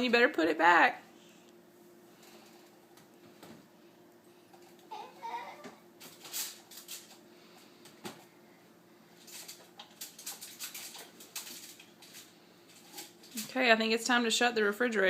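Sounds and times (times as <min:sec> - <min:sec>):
faint steady hum: 0:00.0 - 0:15.0
rustling of food containers: 0:09.2 - 0:13.5.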